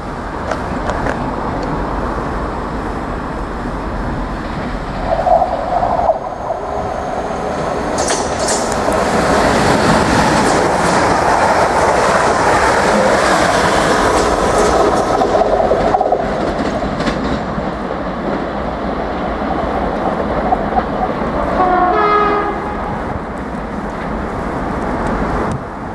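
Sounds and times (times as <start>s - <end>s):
electric train passing at speed: 0.0s - 25.9s
train horn: 21.4s - 23.0s.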